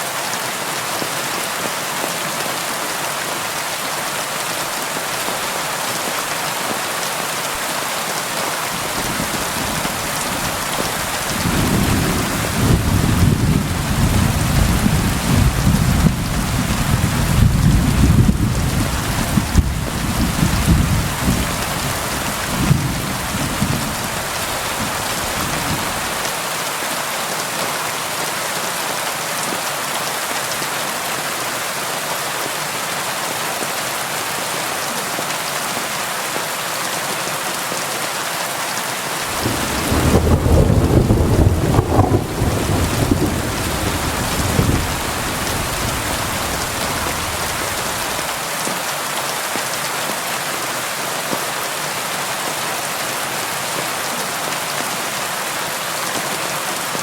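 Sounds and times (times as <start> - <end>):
rain on a window: 8.2 - 26.8, 39.0 - 51.5
low thunder rumbling: 8.8 - 26.1, 39.3 - 48.3.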